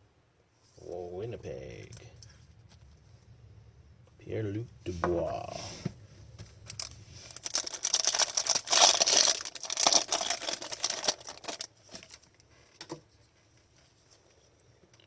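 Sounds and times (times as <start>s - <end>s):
wrapper tearing and crinkling: 6.6s - 12.4s.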